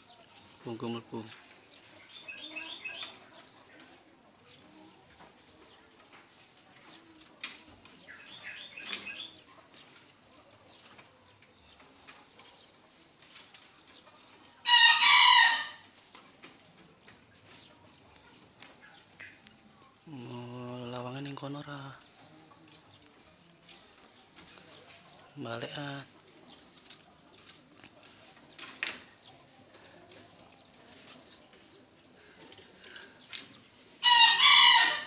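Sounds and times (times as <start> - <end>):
faint clicks and rustles: 1.3 - 14.6, 15.8 - 20.0, 20.9 - 25.4, 26.0 - 34.0
loud bird call: 14.6 - 15.9, 34.0 - 35.0.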